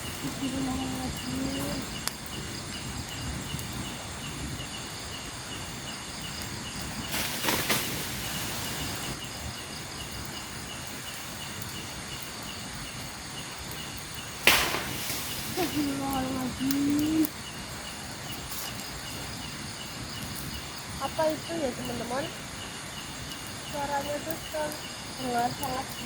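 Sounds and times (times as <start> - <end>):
insect chirping: 0.0 - 26.0
low background hiss: 0.0 - 26.0
rustling: 6.8 - 9.2, 14.3 - 17.3
sharp loud knock: 14.4 - 15.2.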